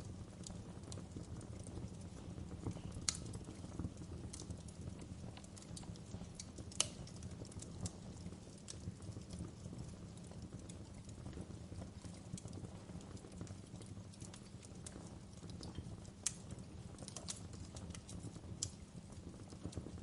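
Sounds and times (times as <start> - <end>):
fire crackling in a fireplace: 0.0 - 20.0.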